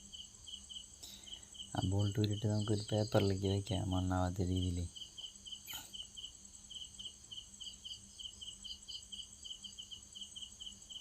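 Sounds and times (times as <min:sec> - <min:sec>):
crickets chirping: 0:00.0 - 0:11.0
high insect trill: 0:00.0 - 0:11.0.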